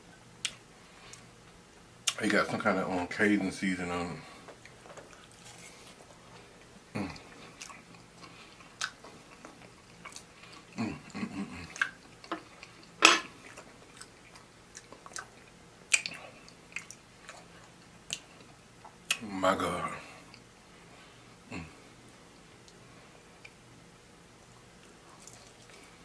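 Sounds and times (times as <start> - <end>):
close-up chewing with wet smacks: 7.1 - 10.8, 11.6 - 19.2, 24.5 - 25.9.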